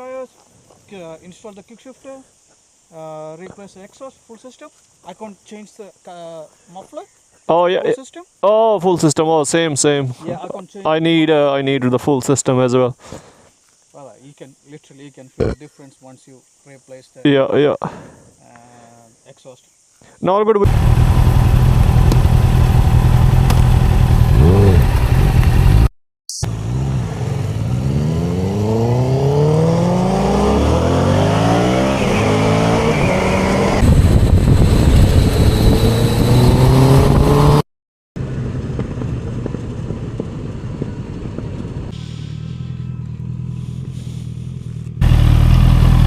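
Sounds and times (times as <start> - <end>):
motorcycle engine revving: 20.7 - 37.6, 38.2 - 46.0.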